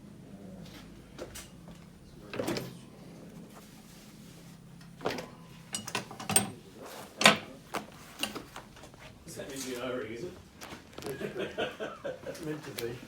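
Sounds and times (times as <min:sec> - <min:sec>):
faint hum: 0:00.0 - 0:13.0
small parts and tools clinking: 0:04.8 - 0:08.9.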